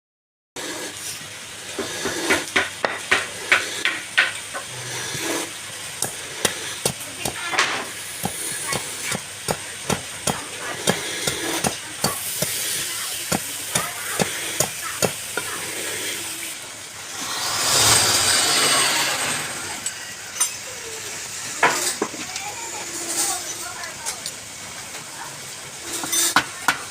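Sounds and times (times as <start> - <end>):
sharp taps and knocks: 1.8 - 4.7
loud rushing noise: 15.8 - 19.8.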